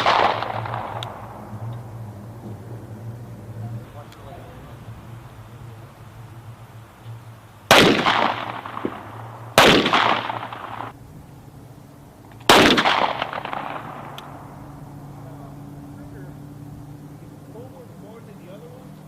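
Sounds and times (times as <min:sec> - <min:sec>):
pistol shots echoing: 0:00.0 - 0:01.5, 0:07.6 - 0:10.9, 0:12.4 - 0:14.5.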